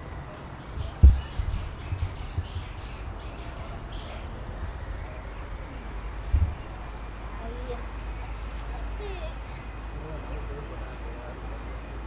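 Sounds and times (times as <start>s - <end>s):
small birds chirping: 0.0s - 12.0s
low rumbling thumps: 0.7s - 7.3s.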